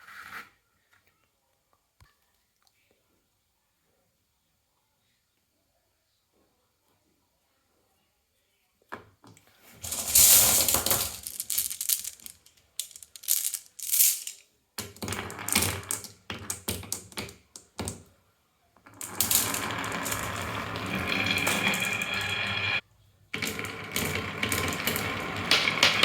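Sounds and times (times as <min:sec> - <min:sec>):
marbles rolling down wooden run: 0:09.8 - 0:14.4, 0:15.0 - 0:16.7, 0:19.0 - 0:22.6, 0:23.4 - 0:26.0.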